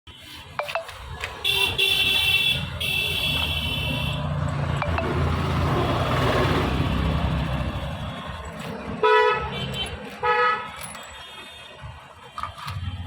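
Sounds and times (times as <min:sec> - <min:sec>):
vehicle horn honking: 0:01.4 - 0:04.3.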